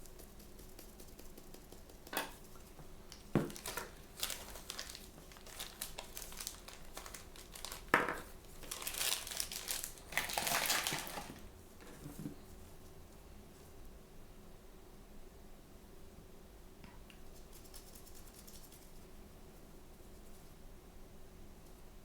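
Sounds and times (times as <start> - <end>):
plastic packaging crinkling: 3.1 - 11.5.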